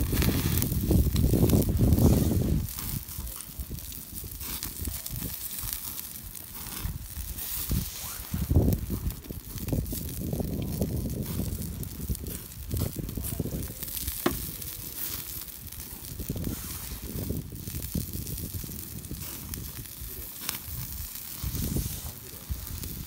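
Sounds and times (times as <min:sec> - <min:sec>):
campfire crackling and hissing: 0:00.0 - 0:23.0
sharp fire pops: 0:00.0 - 0:23.0.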